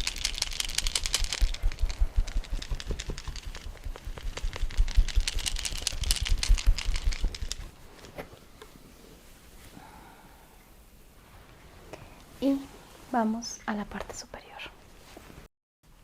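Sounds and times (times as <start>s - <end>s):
hands massaging bare skin: 0.0s - 9.8s.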